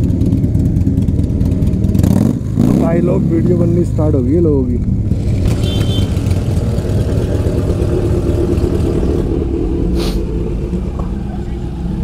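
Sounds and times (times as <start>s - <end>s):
motorcycle engines idling: 0.0s - 12.0s
short sharp hiss: 10.0s - 10.2s.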